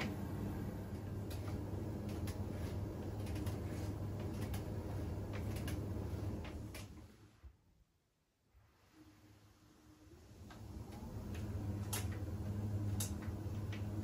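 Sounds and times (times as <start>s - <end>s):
washing machine humming: 0.0s - 7.6s, 9.8s - 14.0s
washing machine clicks: 10.9s - 14.0s.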